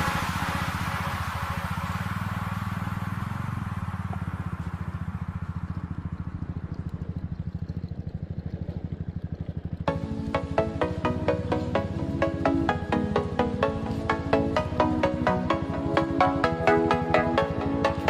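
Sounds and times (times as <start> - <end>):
hiss: 0.0 - 5.0
motorcycle engine at low revs: 0.0 - 18.0.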